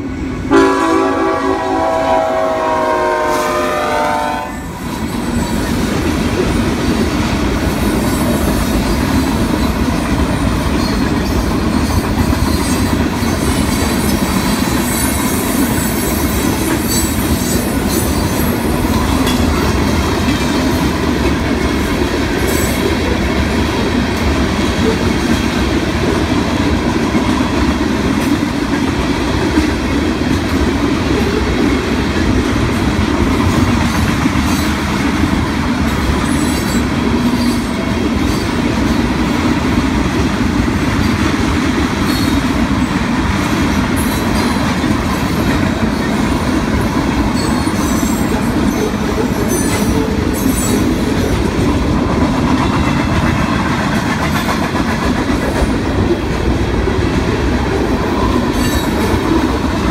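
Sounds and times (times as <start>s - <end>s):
freight train rumbling past: 0.0s - 59.9s
train wheels squealing: 4.8s - 5.8s, 7.7s - 20.0s, 36.2s - 38.5s, 42.0s - 42.5s, 47.3s - 51.3s, 58.1s - 59.2s.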